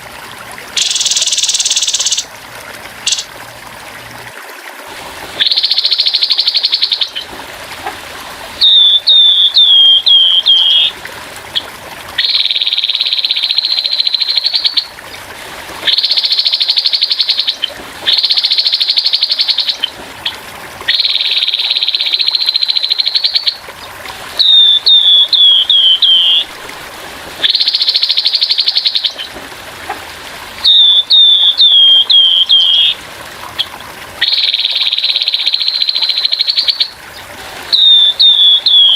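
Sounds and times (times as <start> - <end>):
water trickling: 0.0 - 38.9
bird singing harsh trills: 0.8 - 2.3, 3.1 - 3.3, 5.4 - 7.2, 8.6 - 10.9, 12.2 - 14.9, 15.9 - 19.9, 20.9 - 23.6, 24.4 - 26.5, 30.6 - 33.0, 34.2 - 37.0, 37.7 - 38.9.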